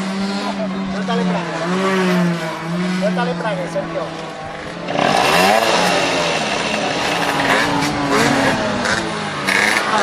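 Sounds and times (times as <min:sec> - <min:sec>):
motorcycle engines revving: 0:00.0 - 0:10.0.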